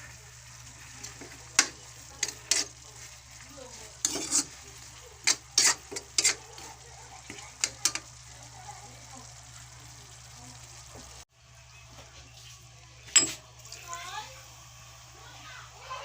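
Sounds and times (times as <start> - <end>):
faint sizzle: 0.0 - 16.0
utensil scraping and knocking pan: 1.6 - 2.8, 4.0 - 4.6, 5.2 - 6.6.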